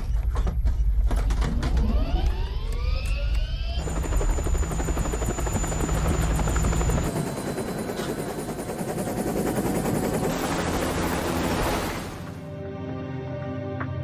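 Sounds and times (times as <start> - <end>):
helicopter rotor beating: 1.7 - 12.4.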